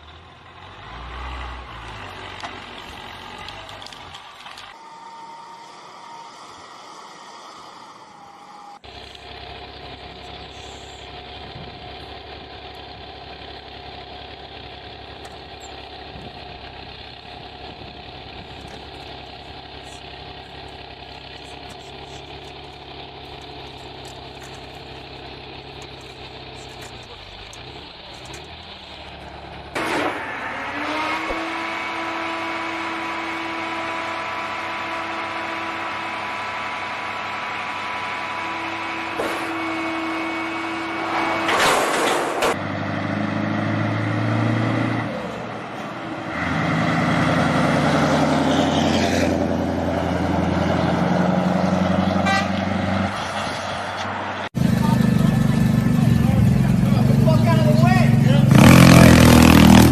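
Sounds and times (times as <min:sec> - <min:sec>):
vehicle engine running: 0:00.0 - 0:04.8, 0:08.2 - 0:59.9
vehicle hum with held tones: 0:00.0 - 0:59.9.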